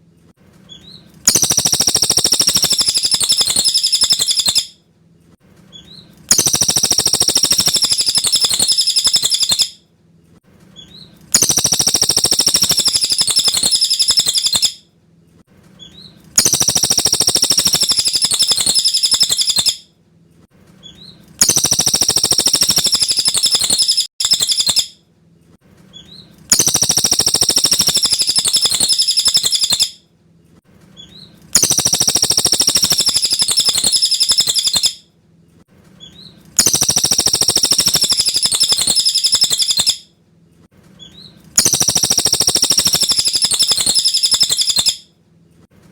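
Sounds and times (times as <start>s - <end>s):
songbird singing: 0.7s - 4.7s, 5.7s - 9.8s, 10.8s - 14.8s, 15.8s - 19.8s, 20.8s - 24.9s, 26.0s - 30.0s, 31.0s - 35.0s, 36.0s - 40.0s, 41.0s - 45.0s.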